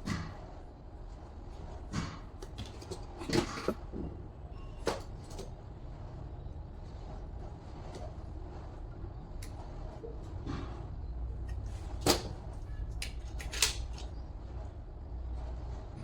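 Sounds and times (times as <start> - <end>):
knocks and clatters: 1.9 - 4.2.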